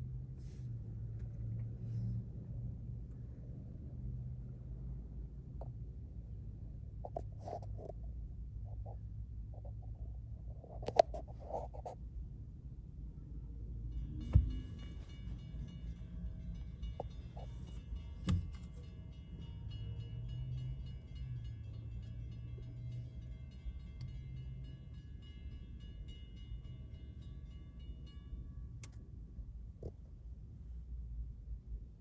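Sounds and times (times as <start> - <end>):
low hum: 13.0 - 32.0
crossing warning bell ringing: 13.8 - 29.5
knock: 14.3 - 14.7.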